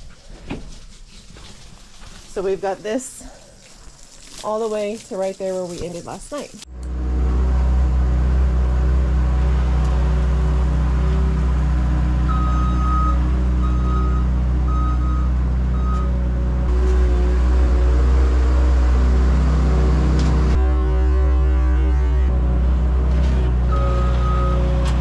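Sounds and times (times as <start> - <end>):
earthmoving machine engine running: 6.7 - 25.0
reversing alarm beeping: 12.2 - 16.2, 23.6 - 25.0.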